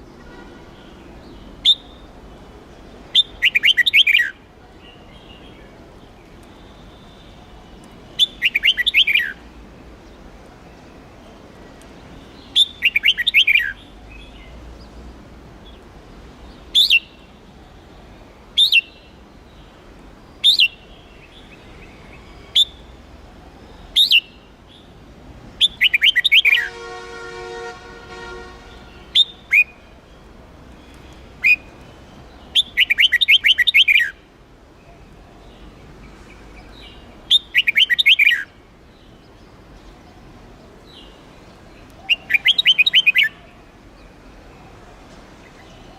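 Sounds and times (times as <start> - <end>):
bird chirping song: 0.0 - 25.0, 25.6 - 44.8
sharp bird call notes: 3.1 - 4.3, 8.2 - 9.4, 12.5 - 13.8, 25.6 - 29.8, 32.5 - 34.2, 37.3 - 38.5, 42.0 - 43.5.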